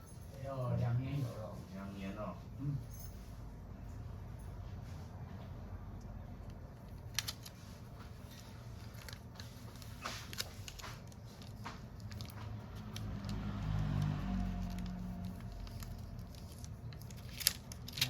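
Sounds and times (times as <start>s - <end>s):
small tools clicking and tapping: 8.3s - 18.0s.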